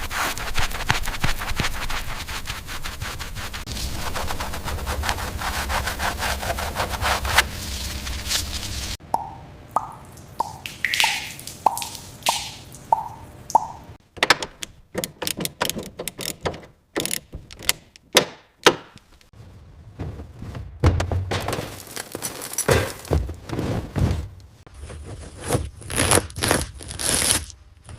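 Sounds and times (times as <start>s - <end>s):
sharp clicks and knocks: 13.0s - 19.3s.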